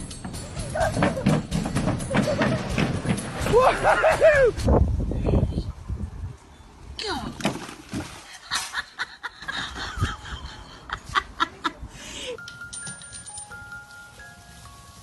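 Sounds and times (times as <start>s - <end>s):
people laughing: 2.1s - 4.6s, 8.4s - 11.9s.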